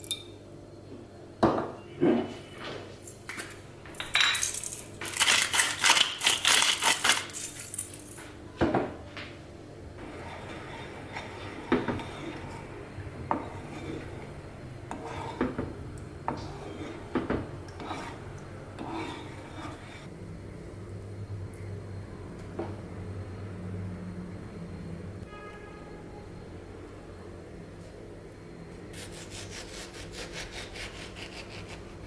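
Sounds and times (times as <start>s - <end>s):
utensils and dishes clinking: 1.8s - 8.4s.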